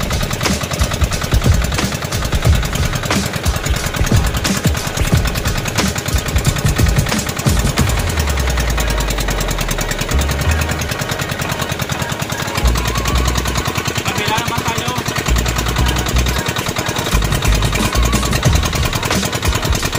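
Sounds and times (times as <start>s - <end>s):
boat engine running: 0.0s - 19.9s.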